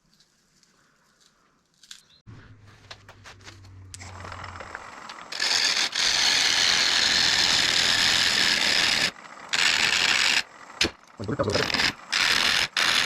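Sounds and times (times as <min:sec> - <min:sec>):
lathe gouge chattering on wood: 0:04.1 - 0:13.0.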